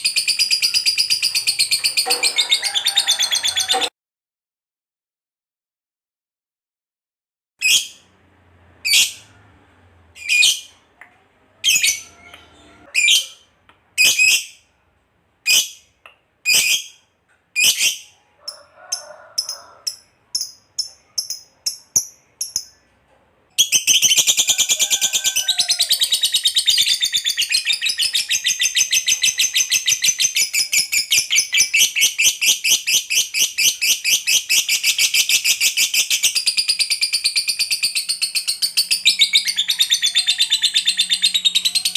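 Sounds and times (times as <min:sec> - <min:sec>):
lovebird chirping and trilling: 0:00.0 - 0:03.9, 0:07.6 - 0:08.0, 0:08.8 - 0:09.3, 0:10.2 - 0:10.8, 0:11.6 - 0:14.6, 0:15.4 - 0:17.0, 0:17.6 - 0:18.2, 0:19.4 - 0:22.9, 0:23.6 - 0:41.9.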